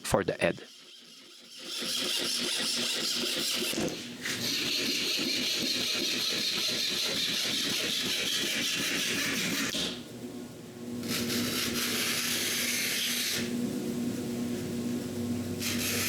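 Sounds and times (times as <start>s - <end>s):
woodworking power tool running: 0.6s - 10.1s, 14.5s - 16.0s.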